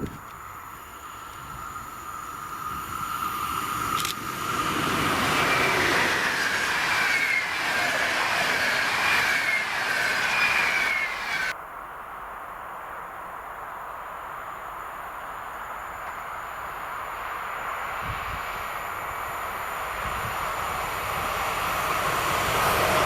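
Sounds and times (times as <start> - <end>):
high wavering whine: 0.4 - 11.6
train passing at speed: 0.4 - 11.6, 14.0 - 23.0.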